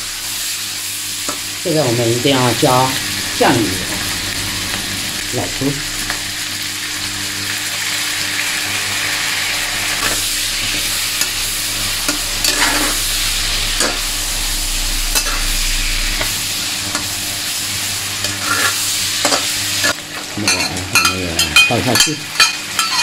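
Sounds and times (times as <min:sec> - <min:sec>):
meat sizzling in a wok: 0:00.0 - 0:23.0
spatula scraping a pan: 0:09.1 - 0:14.2, 0:15.1 - 0:20.0.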